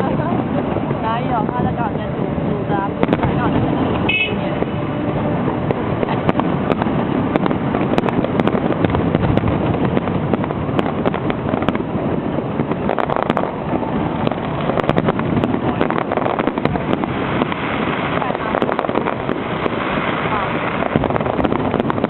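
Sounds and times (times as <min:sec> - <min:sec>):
fireworks crackling and banging: 0:00.0 - 0:22.0.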